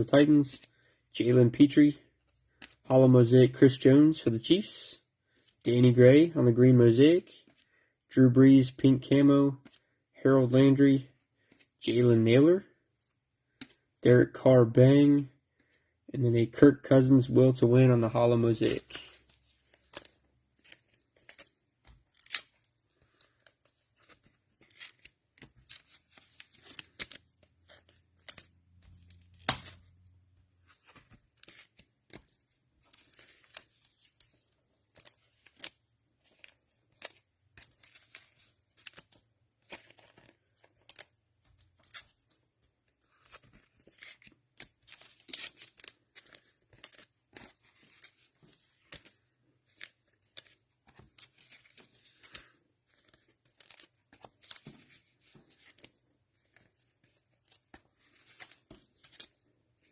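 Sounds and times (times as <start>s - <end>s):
plastic wrapper tearing and crinkling: 22.1s - 23.2s.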